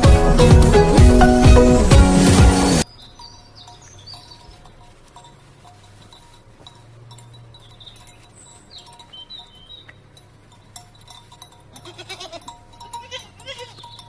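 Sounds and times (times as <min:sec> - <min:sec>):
livestock bells tinkling: 0:00.0 - 0:14.0
bird chirps: 0:02.6 - 0:04.8, 0:07.2 - 0:10.0, 0:13.6 - 0:14.0.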